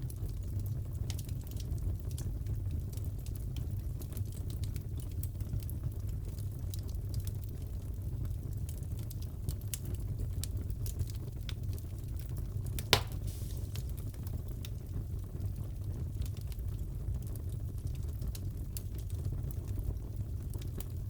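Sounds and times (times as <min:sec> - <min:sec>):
fire crackling: 0:00.0 - 0:21.0
loud fire pop: 0:12.8 - 0:14.1.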